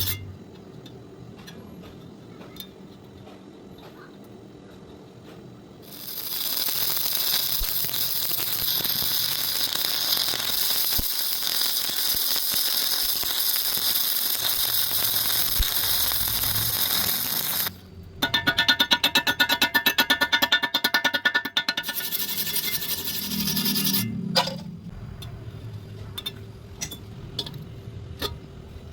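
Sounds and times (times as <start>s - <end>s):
welding arc crackling: 5.8s - 18.8s.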